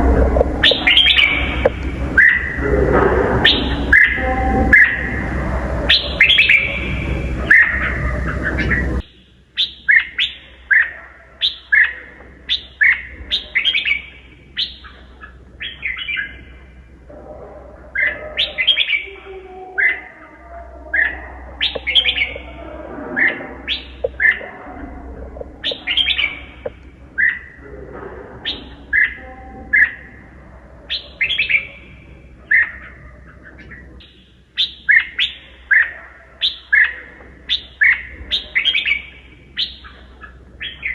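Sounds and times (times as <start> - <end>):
loud background noise: 0.0 - 40.9
bird singing whistled notes: 0.6 - 2.6, 34.0 - 39.9.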